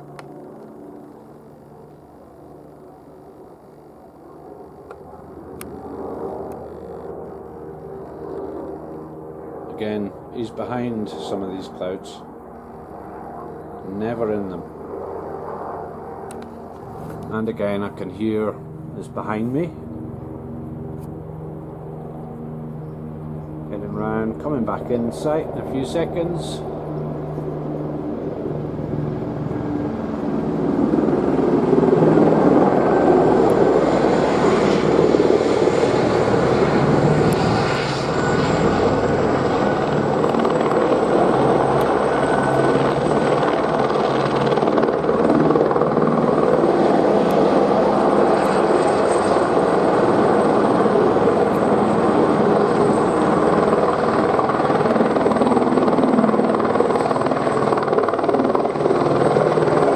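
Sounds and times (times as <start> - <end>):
helicopter rotor and turbine: 0.0 - 59.9.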